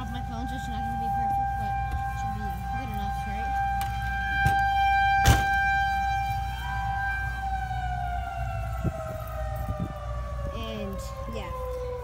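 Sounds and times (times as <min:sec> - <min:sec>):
tornado siren wailing: 0:00.0 - 0:12.0.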